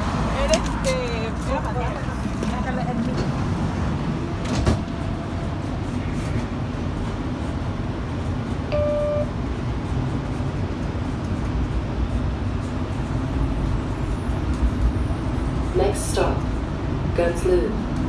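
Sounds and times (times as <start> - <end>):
streetcar rumbling in motion: 0.0 - 18.0
short electronic beep: 8.7 - 9.3.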